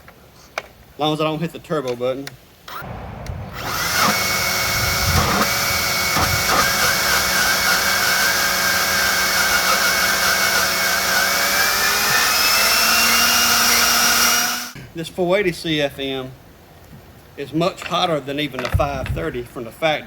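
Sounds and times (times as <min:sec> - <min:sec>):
leaf blower whining: 0:02.8 - 0:14.8.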